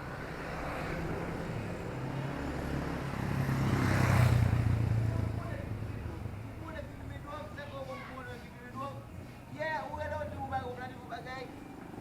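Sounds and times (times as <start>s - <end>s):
vehicle driving past: 0.1s - 6.8s.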